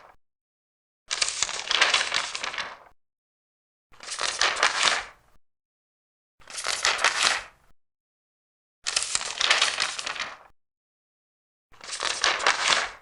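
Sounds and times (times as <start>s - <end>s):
paper pages turning: 1.1s - 2.9s, 4.0s - 5.2s, 6.4s - 7.5s, 8.9s - 10.5s, 11.8s - 13.0s.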